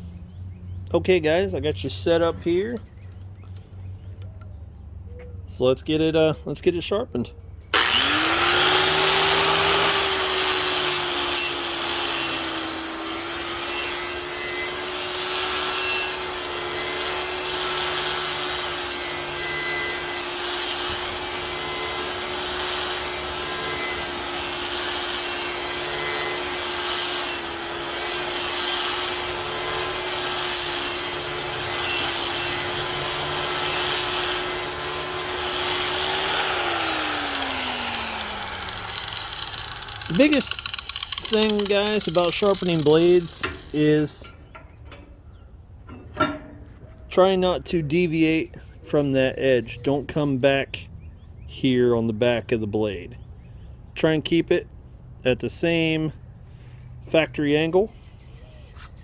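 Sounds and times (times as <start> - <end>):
angle grinder grinding metal: 7.8 - 44.4.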